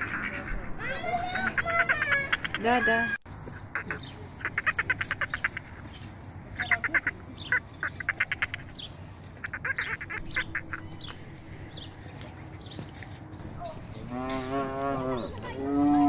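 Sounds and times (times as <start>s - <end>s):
ducks quacking: 0.0s - 5.9s, 6.6s - 11.2s.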